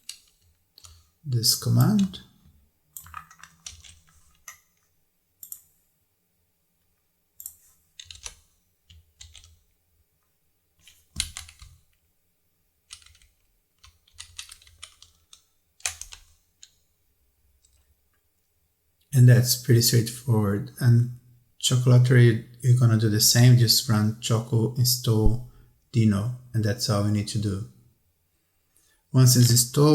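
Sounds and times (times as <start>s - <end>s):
typing on keyboard: 3.0s - 4.6s, 7.4s - 9.6s, 10.8s - 11.8s, 12.9s - 16.4s.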